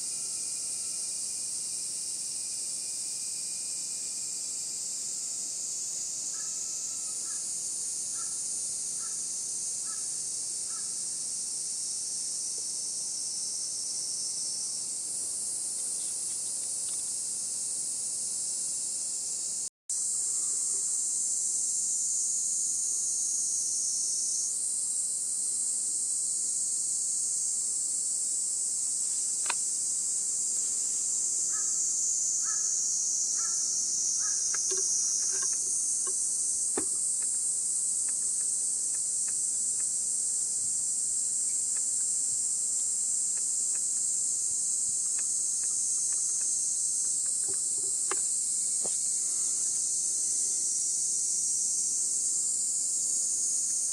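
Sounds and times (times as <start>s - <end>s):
insects shrilling: 28.8s - 53.9s.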